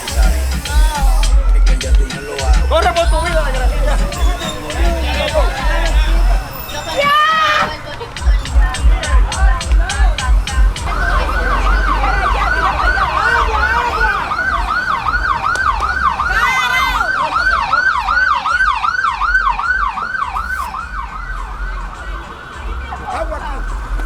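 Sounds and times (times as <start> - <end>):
siren in a fast yelp: 2.1 - 7.7, 10.2 - 23.4
second siren: 10.4 - 23.2.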